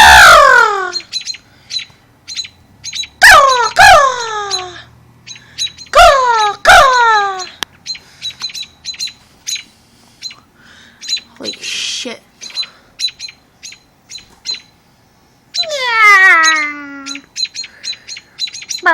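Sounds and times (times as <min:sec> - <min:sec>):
bird squawks: 0:00.0 - 0:14.8, 0:15.5 - 0:18.9
high bird chirps: 0:00.0 - 0:18.9.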